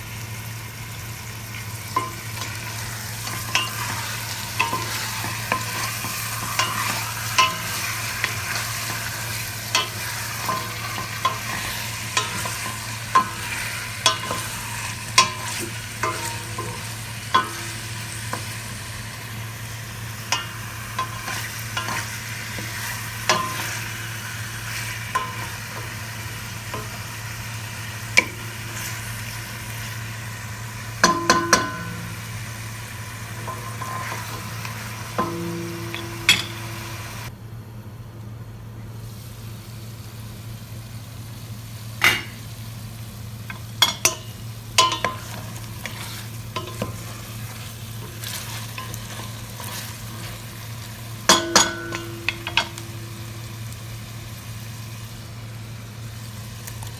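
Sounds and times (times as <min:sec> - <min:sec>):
food sizzling in a pan: 0:00.0 - 0:37.3, 0:38.9 - 0:56.9
utensil scraping a pan: 0:02.0 - 0:19.1, 0:20.2 - 0:26.0, 0:33.4 - 0:37.3, 0:44.8 - 0:50.7.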